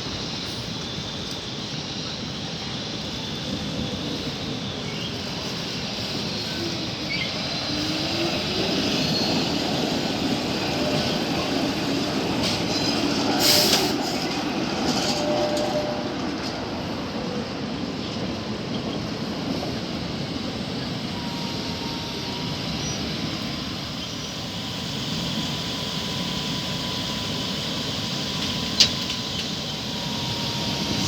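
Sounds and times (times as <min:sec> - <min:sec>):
tram wheels rumbling on rails: 0:00.0 - 0:31.0.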